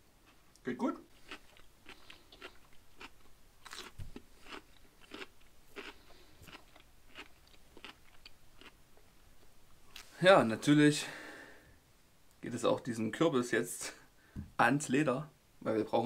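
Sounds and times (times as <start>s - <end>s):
person chewing cucumber: 0.2s - 10.1s.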